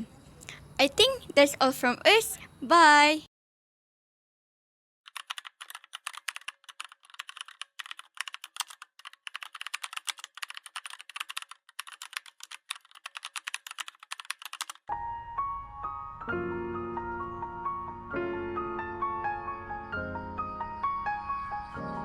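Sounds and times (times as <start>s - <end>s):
rapid keyboard typing: 5.1s - 14.9s
piano music: 14.9s - 22.0s.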